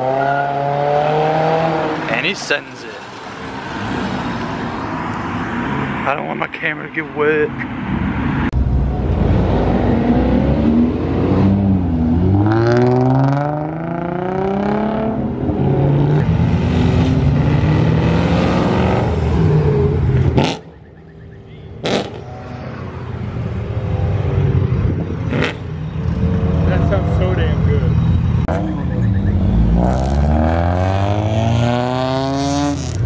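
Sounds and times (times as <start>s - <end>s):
car engine revving hard: 0.0s - 2.0s, 9.6s - 20.6s, 28.5s - 33.0s.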